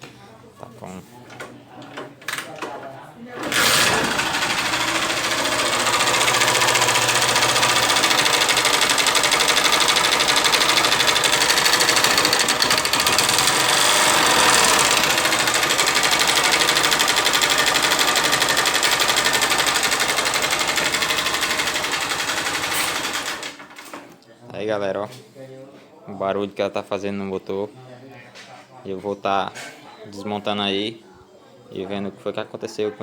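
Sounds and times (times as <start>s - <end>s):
motorcycle engine clattering: 3.4s - 23.8s.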